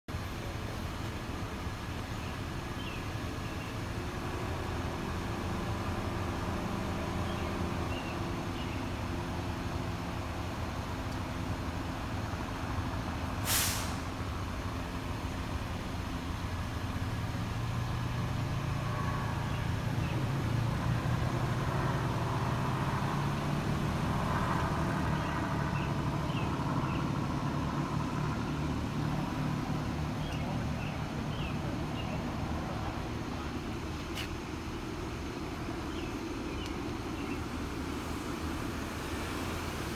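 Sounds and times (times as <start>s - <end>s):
heavy vehicle engines running: 0.1s - 39.9s
short sharp hiss: 13.4s - 14.2s.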